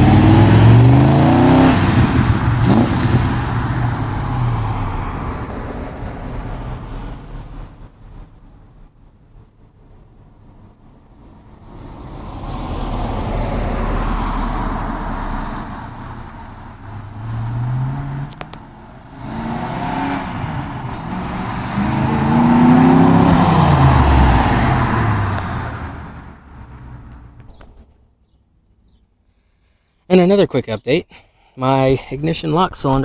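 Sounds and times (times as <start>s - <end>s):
car engine driving by: 0.0s - 9.0s, 10.7s - 27.9s.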